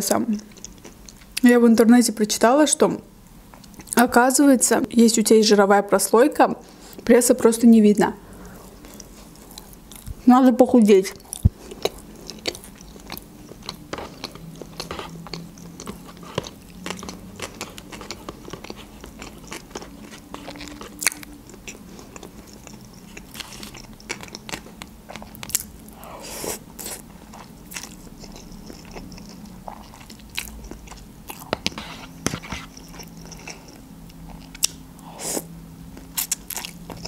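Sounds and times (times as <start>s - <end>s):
faint low hum: 0.0s - 37.0s
chewing with crunches: 0.3s - 1.4s, 3.6s - 4.0s, 8.5s - 10.2s, 11.1s - 37.0s.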